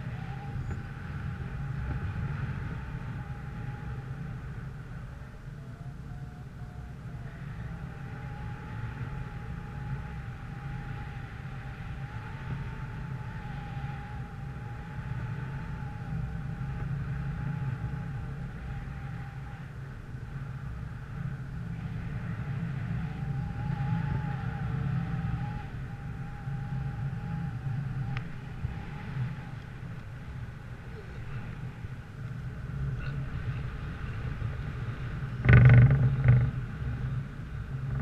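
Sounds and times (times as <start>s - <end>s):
vehicle engine droning: 0.0s - 38.0s.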